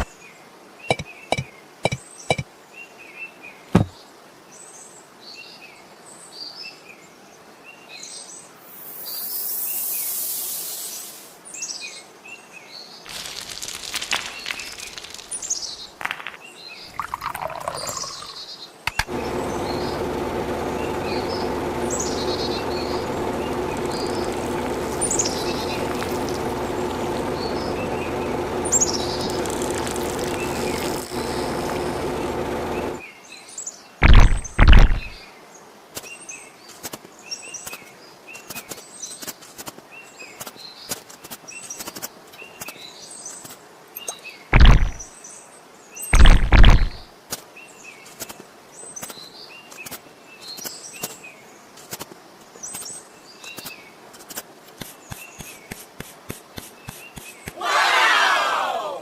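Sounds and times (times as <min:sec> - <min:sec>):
fast run of ticks: 0:13.1 - 0:16.3, 0:17.0 - 0:33.0, 0:34.0 - 0:35.2, 0:44.6 - 0:45.0, 0:46.2 - 0:47.0, 0:53.6 - 0:57.6
birds chirping: 0:13.1 - 0:33.0, 0:34.0 - 0:35.2
steady tonal hum: 0:19.0 - 0:33.0
heavy thuds: 0:34.0 - 0:35.2.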